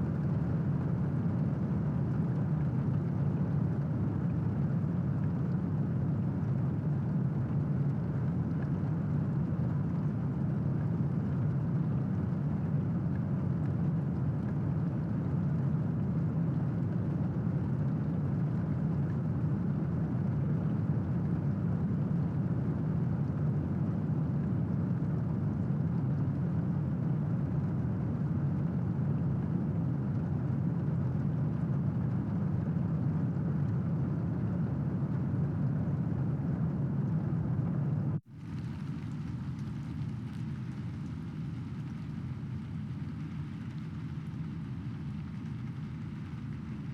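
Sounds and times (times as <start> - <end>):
steady rain: 38.3 - 46.9.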